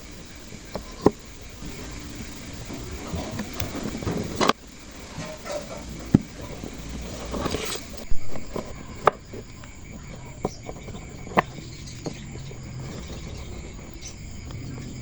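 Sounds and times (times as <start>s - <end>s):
background hiss: 0.0s - 15.0s
rustling scrape: 5.0s - 15.0s.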